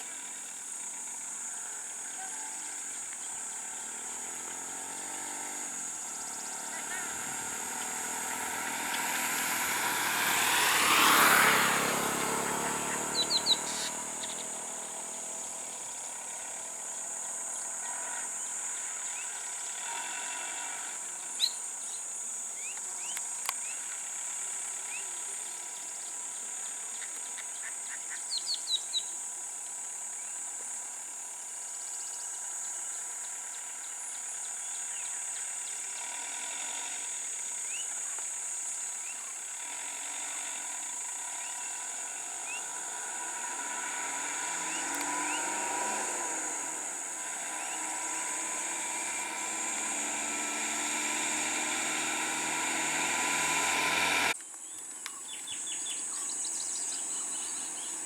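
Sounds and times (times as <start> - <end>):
birds chirping: 0.2 - 19.9, 40.8 - 58.0
vehicle driving past: 3.4 - 17.4, 39.6 - 54.4.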